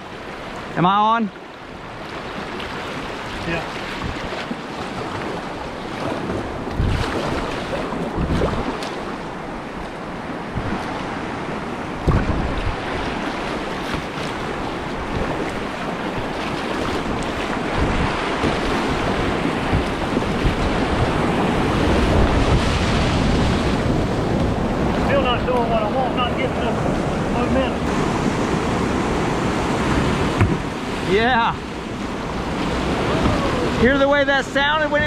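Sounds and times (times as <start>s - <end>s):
river rapids rushing: 0.0s - 35.0s
wind buffeting microphone: 1.8s - 33.9s
sudden thumps: 12.0s - 12.6s.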